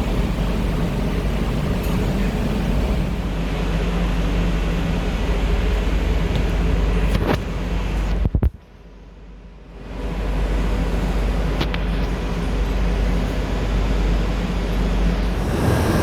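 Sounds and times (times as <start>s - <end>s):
air conditioner fan running: 0.0s - 3.4s, 13.2s - 16.0s.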